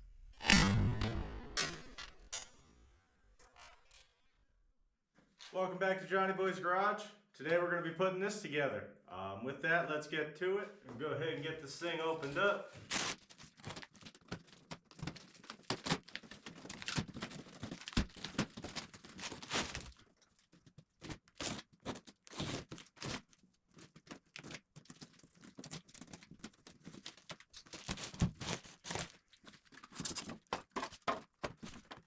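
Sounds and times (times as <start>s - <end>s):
cardboard box tearing: 12.8s - 20.0s, 26.9s - 29.2s.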